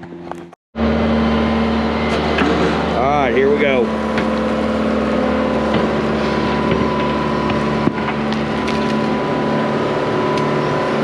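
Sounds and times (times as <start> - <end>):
excavator engine running: 0.0 - 11.0
bucket scraping ground: 5.6 - 9.2.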